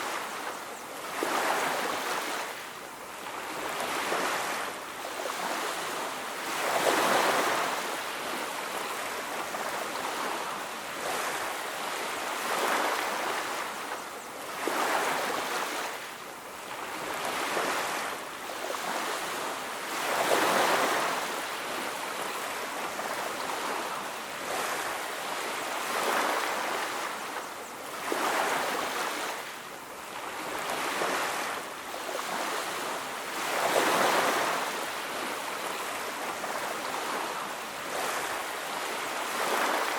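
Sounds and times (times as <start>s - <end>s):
ocean waves washing onto beach: 0.0s - 39.9s.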